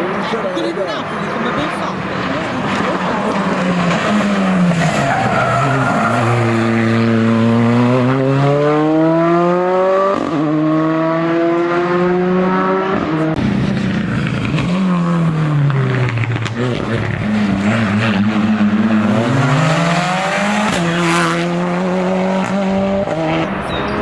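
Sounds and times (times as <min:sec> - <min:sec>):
race car accelerating hard: 0:00.0 - 0:24.0.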